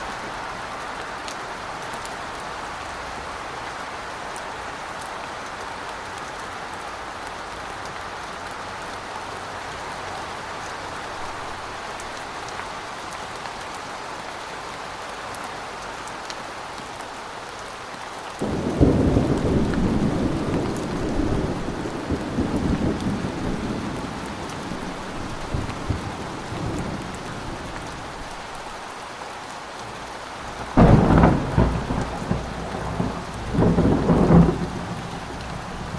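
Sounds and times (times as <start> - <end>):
rain hiss: 0.0 - 35.9
thunder rumbling: 18.4 - 28.6, 30.5 - 35.9.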